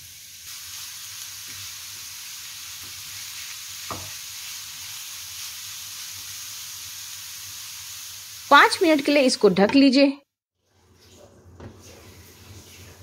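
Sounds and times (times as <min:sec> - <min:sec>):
food sizzling in hot fat: 0:00.0 - 0:09.6, 0:10.9 - 0:13.0
spatula stirring in pan: 0:01.3 - 0:05.8.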